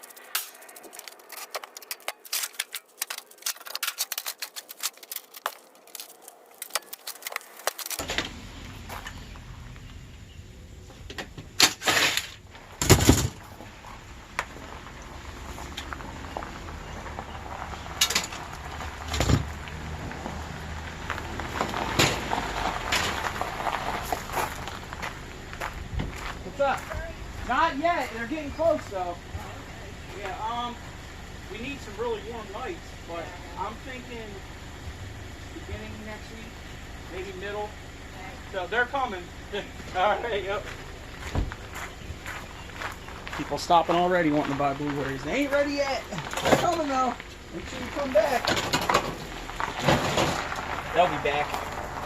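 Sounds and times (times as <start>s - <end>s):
clicks and snips on scrap metal: 0.0s - 8.2s
steady low rumble: 12.4s - 45.4s.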